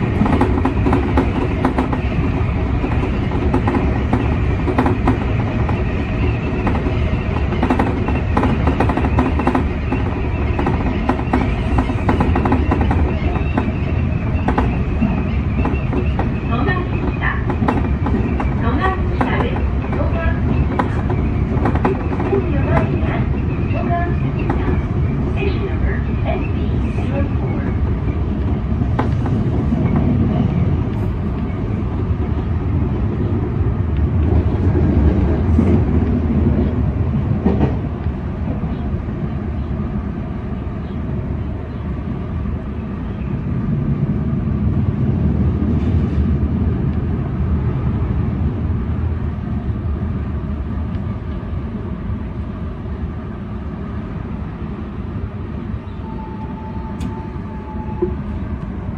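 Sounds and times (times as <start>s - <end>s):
train wheels rumbling on rail: 0.0s - 58.9s.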